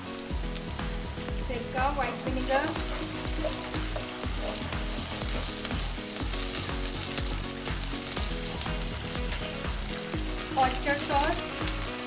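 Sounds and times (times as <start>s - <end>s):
sauce sizzling in hot oil: 0.0s - 12.0s.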